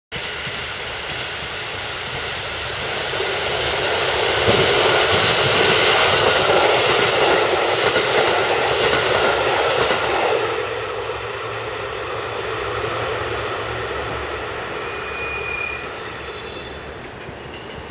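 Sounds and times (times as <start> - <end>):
train passing at speed: 0.1 - 17.9.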